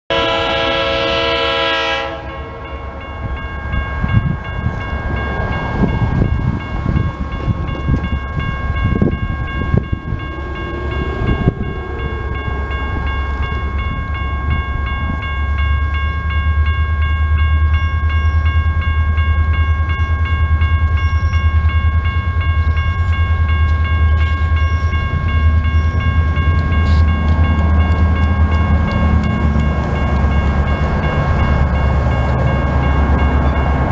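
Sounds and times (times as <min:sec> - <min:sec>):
train horn: 0:00.1 - 0:03.2
crossing signal bell ringing: 0:00.1 - 0:33.9
deep locomotive engine rumble: 0:00.1 - 0:33.9.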